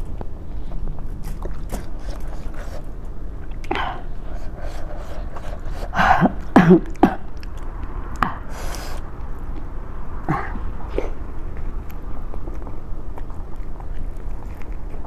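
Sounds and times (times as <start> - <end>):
sharp sniff: 1.3 - 3.0, 3.7 - 7.2, 8.2 - 9.1
woman coughing: 5.8 - 7.3.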